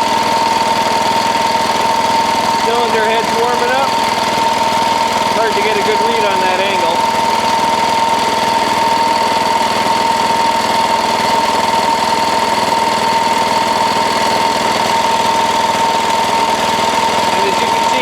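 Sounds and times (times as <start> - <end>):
small diesel engine idling: 0.0 - 18.0.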